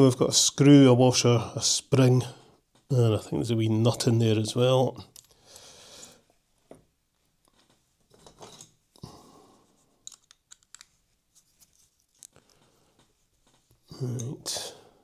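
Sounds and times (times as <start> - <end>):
clicks of tiny parts handled: 10.0 - 11.0, 11.6 - 14.3.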